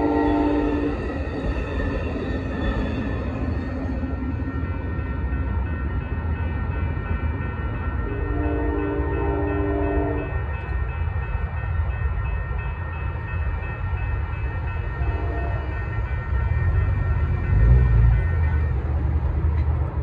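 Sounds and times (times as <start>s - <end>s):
train horn chord: 0.0s - 1.1s, 8.0s - 10.4s, 15.0s - 16.0s
crossing warning bell ringing: 0.0s - 20.0s
train rumbling: 0.0s - 20.0s.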